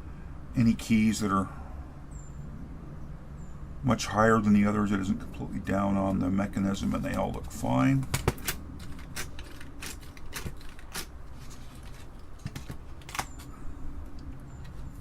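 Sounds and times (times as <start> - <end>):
keyboard plastic clicks: 7.1 - 14.8.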